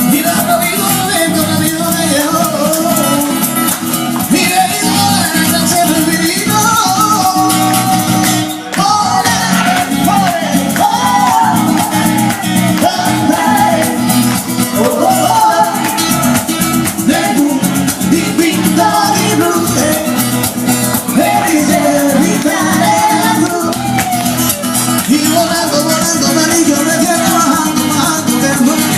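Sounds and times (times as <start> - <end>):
guitar: 0.0 - 28.9
person singing: 0.0 - 28.9
shaker rhythm: 0.0 - 28.9.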